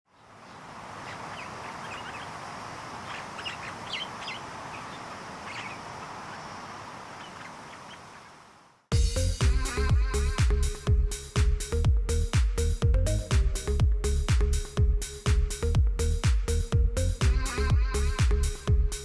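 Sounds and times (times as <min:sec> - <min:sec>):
birds chirping: 0:00.1 - 0:08.5
outdoor background noise: 0:00.1 - 0:19.0.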